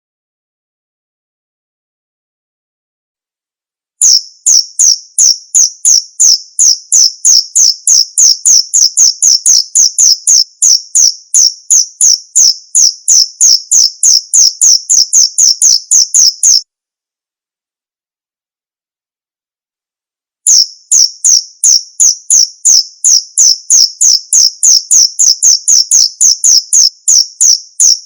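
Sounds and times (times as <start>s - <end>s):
cricket chirping: 4.0s - 16.6s, 20.5s - 28.0s.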